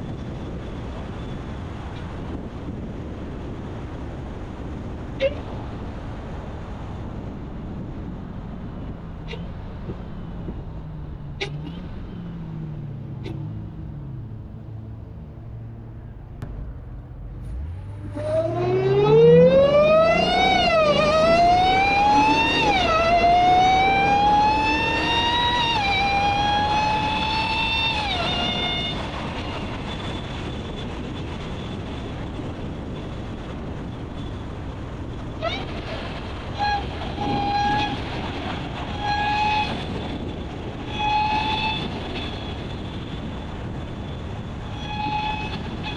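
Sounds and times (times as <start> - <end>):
car engine drone: 0.0 - 45.9
road rumble: 0.0 - 45.9
supercharger whine: 9.2 - 31.9.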